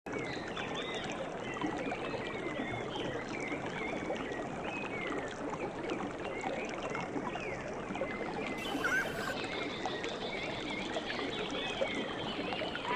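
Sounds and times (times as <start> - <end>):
running water: 3.2 - 12.9
high bird chirps: 8.6 - 9.4.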